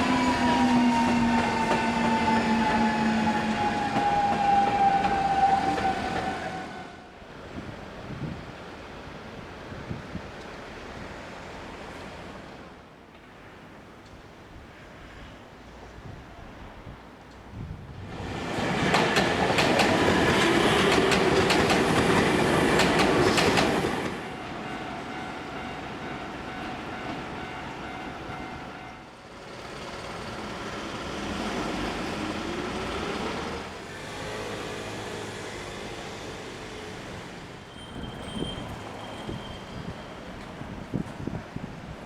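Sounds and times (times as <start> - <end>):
train wheels clattering over rail joints: 18.5 - 24.2.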